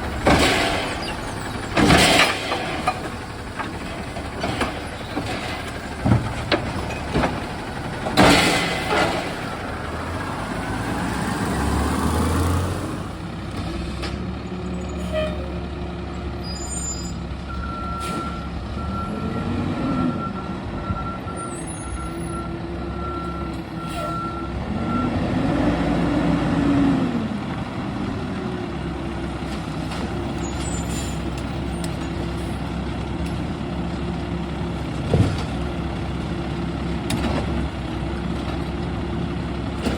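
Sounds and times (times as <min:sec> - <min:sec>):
garbage truck engine revving: 0:00.0 - 0:15.1, 0:22.6 - 0:39.9
reversing beeps: 0:16.7 - 0:25.2
air brakes hissing: 0:18.0 - 0:18.4, 0:23.8 - 0:24.3, 0:30.4 - 0:31.3.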